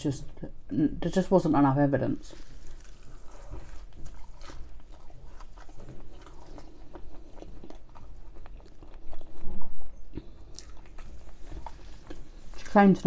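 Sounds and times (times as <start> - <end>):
crunchy chewing: 2.3 - 13.0
biting into fried pastry: 2.4 - 12.8.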